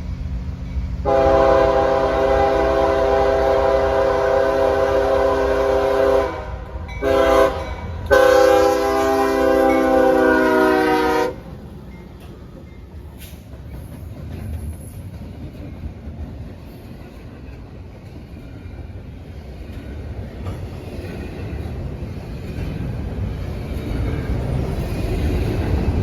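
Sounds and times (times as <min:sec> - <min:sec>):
train rumbling past: 0:00.0 - 0:26.0
locomotive air horn chord: 0:01.0 - 0:11.4.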